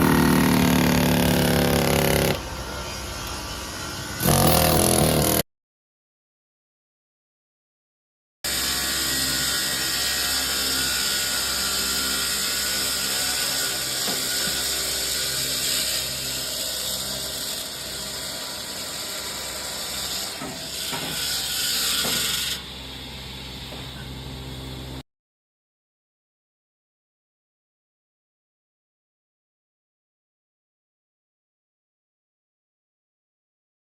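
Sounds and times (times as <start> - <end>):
machinery high whine: 1.6 - 5.2, 21.3 - 25.0
machinery low hum: 22.6 - 25.0.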